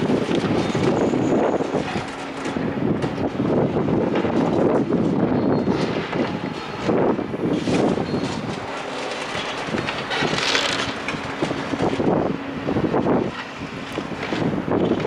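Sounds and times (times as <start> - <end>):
engine running: 0.0 - 15.0
debris crunching and clattering: 7.5 - 12.0.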